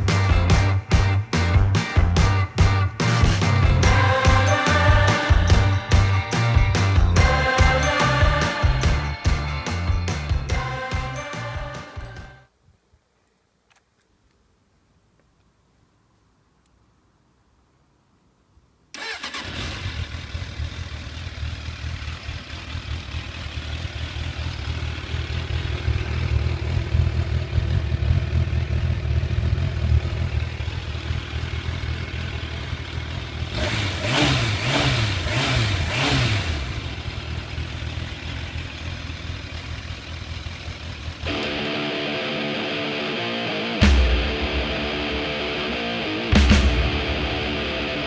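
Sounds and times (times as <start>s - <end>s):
motorcycle engine starting and idling: 18.9s - 41.8s
motorcycle engine revving: 19.0s - 41.7s.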